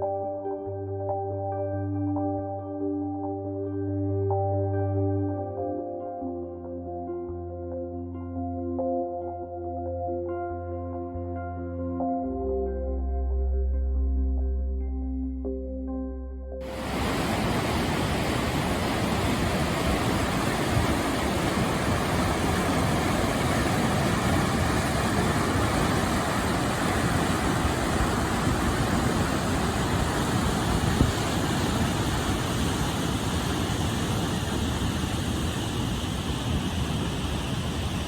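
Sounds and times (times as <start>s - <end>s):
whitewater rushing: 16.6s - 38.0s.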